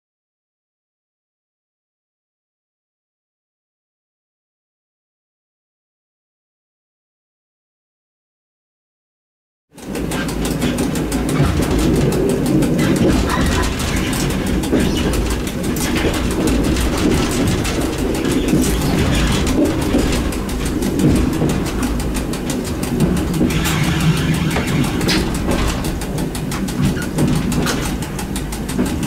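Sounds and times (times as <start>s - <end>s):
train mechanical rumble: 9.8s - 29.0s.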